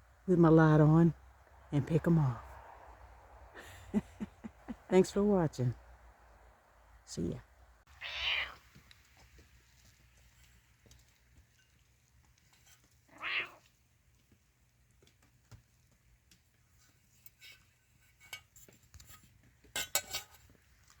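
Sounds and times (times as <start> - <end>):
cat meowing: 7.9 - 8.6, 13.1 - 13.7.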